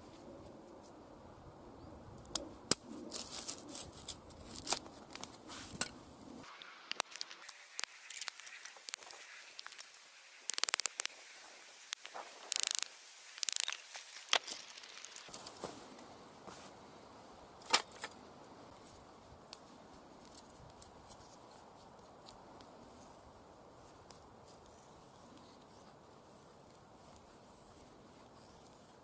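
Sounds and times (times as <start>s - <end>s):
sharp clicks: 10.5s - 11.1s, 11.9s - 13.8s.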